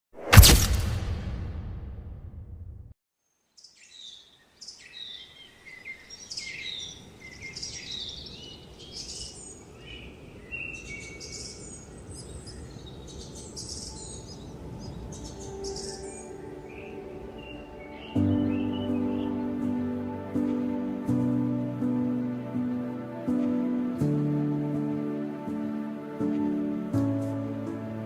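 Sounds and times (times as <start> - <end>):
whoosh and impact sound effect: 0.2 - 2.9
small birds chirping: 3.5 - 20.7.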